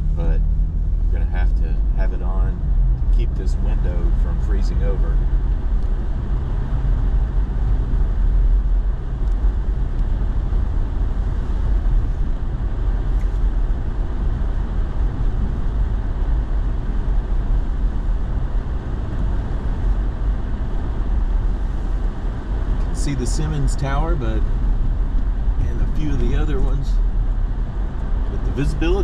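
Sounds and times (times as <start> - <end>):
engine and tyre rumble: 0.0 - 29.0
heater fan blowing: 5.6 - 29.0.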